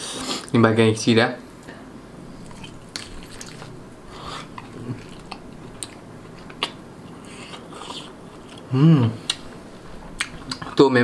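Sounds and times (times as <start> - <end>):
biting and chewing: 2.3 - 10.8.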